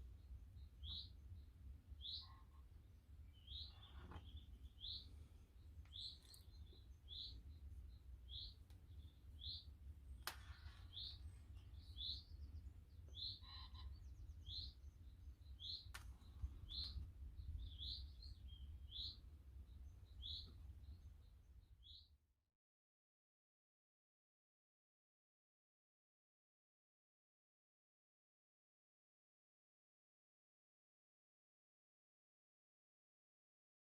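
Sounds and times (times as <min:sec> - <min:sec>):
bird chirping: 0:00.0 - 0:09.7, 0:10.4 - 0:22.2.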